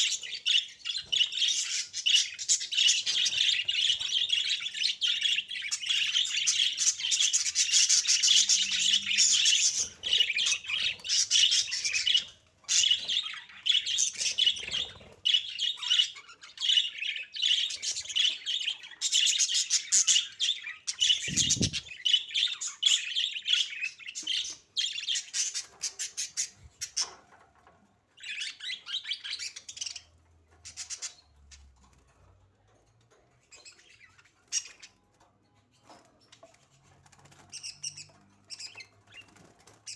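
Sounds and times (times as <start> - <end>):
budgerigars chattering: 21.0 - 21.9.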